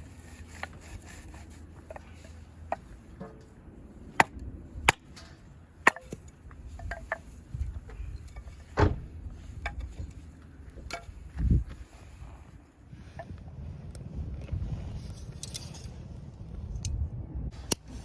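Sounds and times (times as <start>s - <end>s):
dull low thump: 8.7s - 9.2s.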